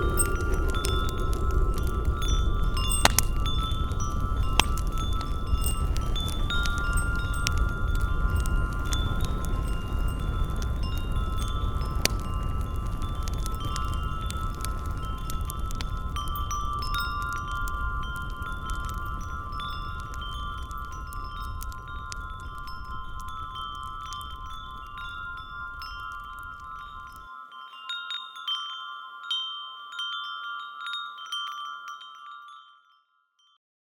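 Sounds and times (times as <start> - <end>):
low background rumble: 0.0 - 24.8.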